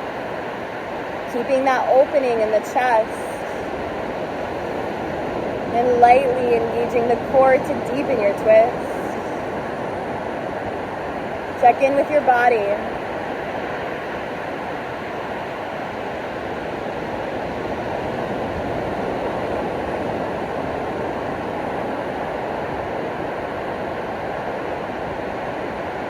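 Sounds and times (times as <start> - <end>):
ocean surf washing on shore: 0.0 - 26.0.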